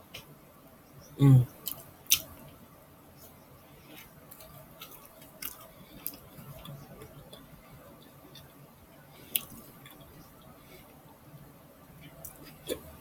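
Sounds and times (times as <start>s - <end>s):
chewing food: 1.5s - 2.6s, 3.2s - 11.0s, 12.0s - 13.0s.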